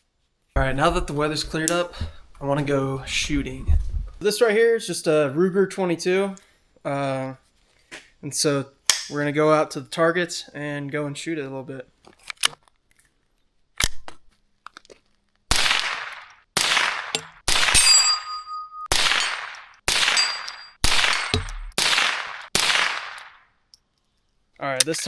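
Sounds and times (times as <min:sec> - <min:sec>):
rifle gunshots: 0:15.5 - 0:18.2, 0:18.9 - 0:23.4.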